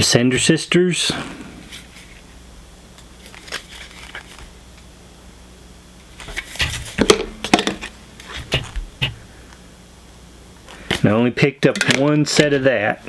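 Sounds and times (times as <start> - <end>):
packaging crinkling: 3.0 - 4.6.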